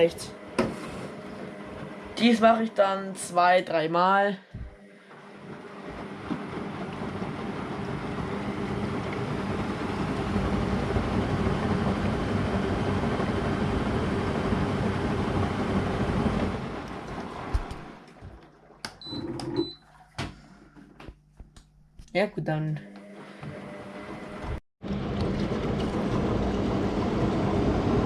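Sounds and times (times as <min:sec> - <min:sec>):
washer-dryer water rushing: 0:04.6 - 0:20.8, 0:23.3 - 0:28.0.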